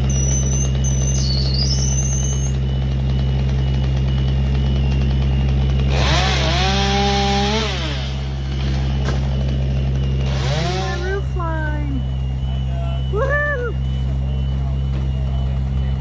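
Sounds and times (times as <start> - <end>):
chainsaw revving: 0.0 - 11.9
low engine drone: 0.0 - 16.0.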